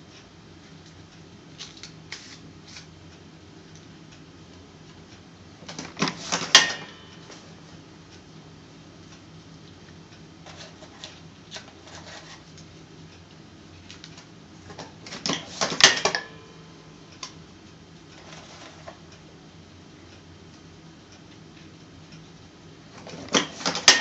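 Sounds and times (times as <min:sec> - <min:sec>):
rattling clicks of a machine: 0:05.6 - 0:07.4, 0:13.9 - 0:16.4, 0:23.0 - 0:24.0.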